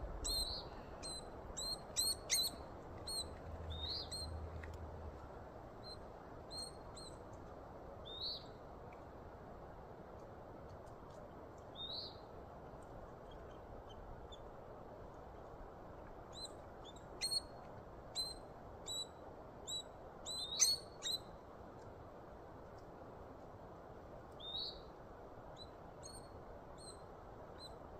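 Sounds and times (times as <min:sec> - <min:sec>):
steady background hiss: 0:00.0 - 0:27.9
woodpecker call notes: 0:00.2 - 0:04.3
rising bird chirp: 0:00.2 - 0:04.4.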